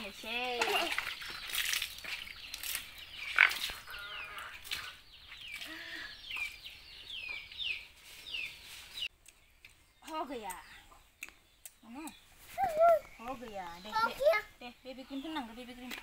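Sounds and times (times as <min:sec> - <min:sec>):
water splashing in a bucket: 0:00.0 - 0:03.9
bird chirping: 0:00.0 - 0:16.0.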